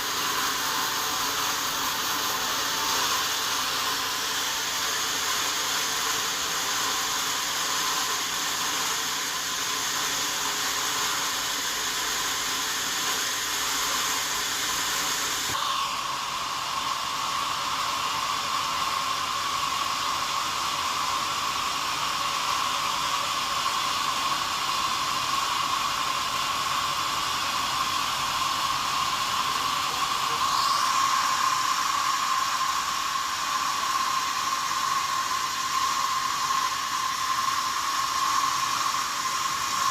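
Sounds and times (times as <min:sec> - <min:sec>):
sawmill machinery running: 0:00.0 - 0:39.9
high hum: 0:29.4 - 0:39.9.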